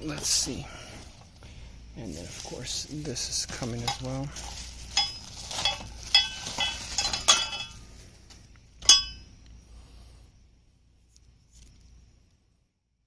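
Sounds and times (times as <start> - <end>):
metal parts clinking: 3.8 - 7.9, 8.8 - 9.2.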